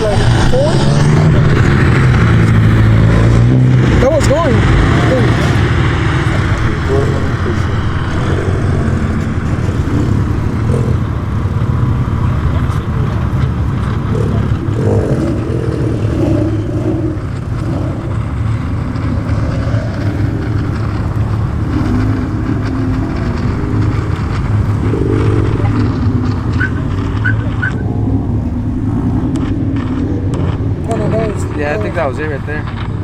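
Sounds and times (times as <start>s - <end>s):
car engine running: 0.0s - 33.0s
road noise: 0.0s - 33.0s.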